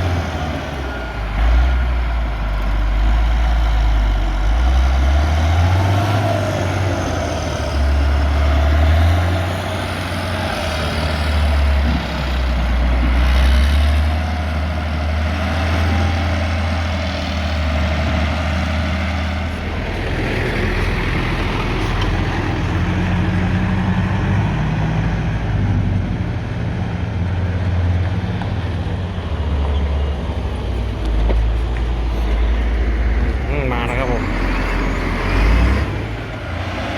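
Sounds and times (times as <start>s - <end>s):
diesel engine rumbling: 0.0s - 36.9s.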